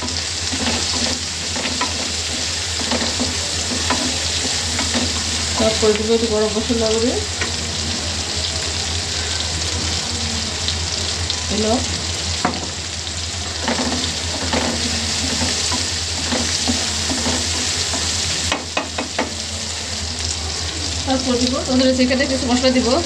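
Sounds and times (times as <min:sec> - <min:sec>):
chicken sizzling in hot oil: 0:00.0 - 0:23.0
wooden spatula scraping a wok: 0:00.1 - 0:05.8, 0:13.6 - 0:18.6.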